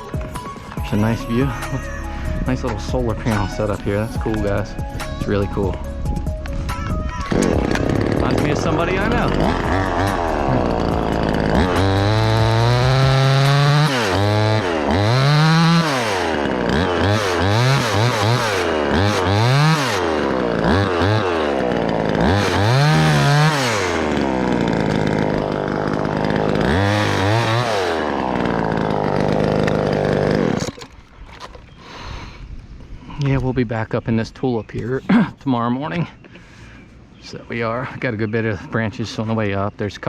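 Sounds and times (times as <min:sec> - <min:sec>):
chainsaw running: 0:00.0 - 0:06.6, 0:07.2 - 0:31.7.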